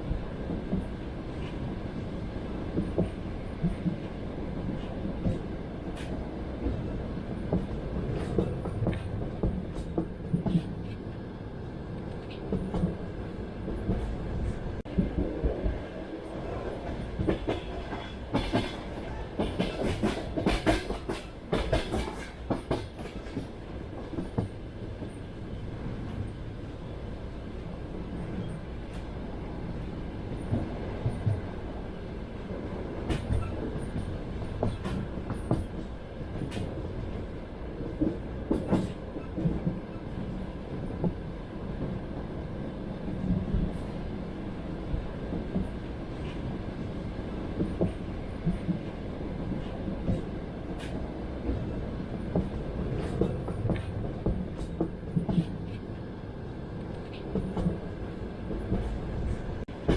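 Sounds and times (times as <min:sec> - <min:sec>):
train wheels clacking on rails: 0:02.7 - 0:06.8, 0:16.5 - 0:25.3, 0:33.0 - 0:36.8, 0:37.8 - 0:41.2, 0:47.5 - 0:55.8.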